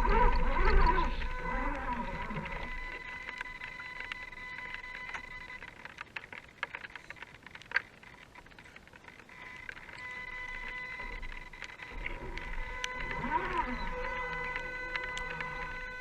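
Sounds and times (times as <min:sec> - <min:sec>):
electric motor whining: 0:00.0 - 0:05.9, 0:09.2 - 0:16.0
small clicks and ticks: 0:00.0 - 0:16.0.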